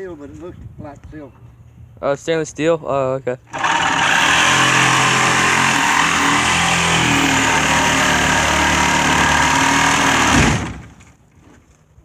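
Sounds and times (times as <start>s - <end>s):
power saw running: 3.5s - 11.1s
saw blade jamming thump: 3.6s - 11.1s.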